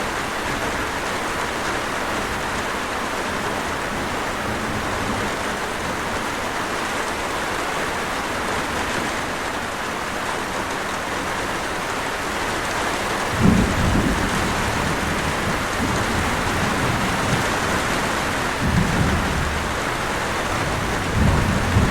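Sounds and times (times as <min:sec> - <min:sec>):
heavy rain falling: 0:00.0 - 0:21.9
thunder rumbling: 0:13.3 - 0:21.9.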